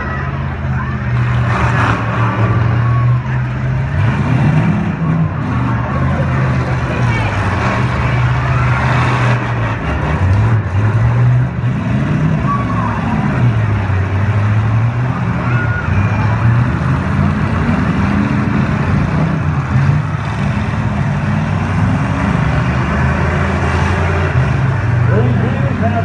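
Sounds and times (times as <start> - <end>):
car engines revving: 0.0 - 26.0.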